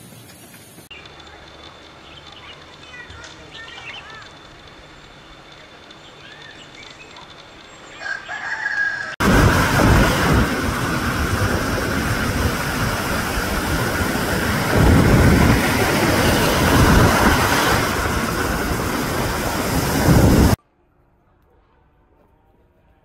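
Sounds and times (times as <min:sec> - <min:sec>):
wind blowing on microphone: 0:09.2 - 0:20.6.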